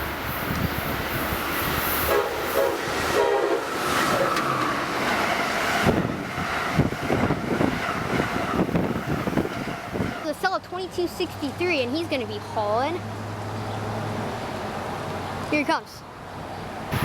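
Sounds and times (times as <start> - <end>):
train rumble: 0.0 - 15.6, 16.2 - 17.0
train horn: 2.0 - 3.8.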